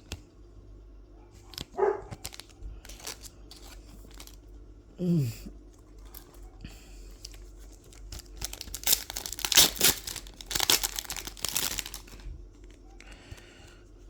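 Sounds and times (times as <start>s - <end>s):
foil wrapper tearing and crinkling: 1.4s - 4.4s, 7.1s - 12.8s.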